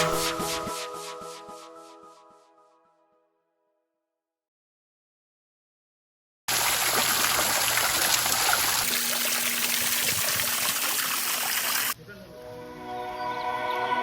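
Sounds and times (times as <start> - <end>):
running water rushing: 6.5 - 12.0.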